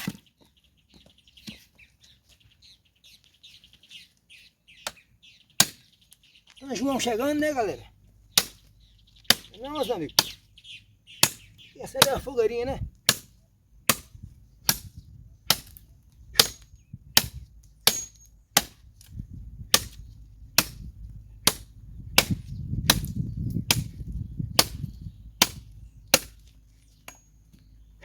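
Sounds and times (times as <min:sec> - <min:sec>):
machete chopping firewood: 0:00.0 - 0:00.3, 0:05.6 - 0:05.9, 0:08.3 - 0:08.7, 0:09.3 - 0:10.4, 0:11.2 - 0:12.3, 0:13.0 - 0:27.3.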